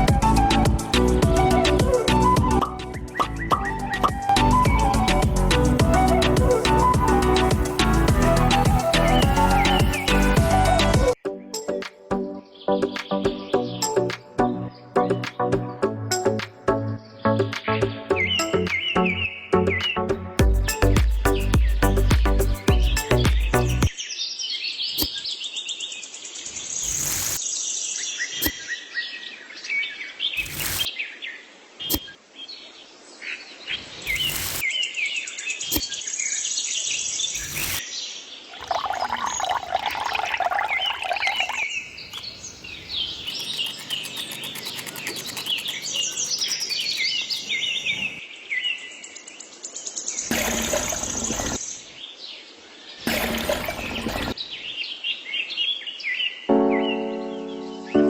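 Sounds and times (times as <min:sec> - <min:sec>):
small birds chirping: 0:06.8 - 0:10.4, 0:18.2 - 0:50.3.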